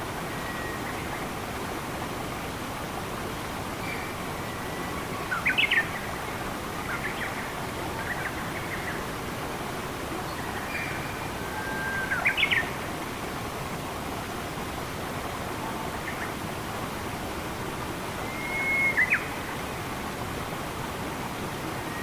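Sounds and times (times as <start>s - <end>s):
flowing water: 0.0s - 22.0s.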